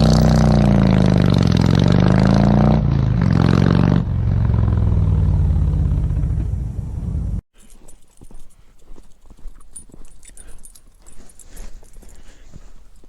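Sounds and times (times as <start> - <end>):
vehicle engine revving: 0.0 - 7.4.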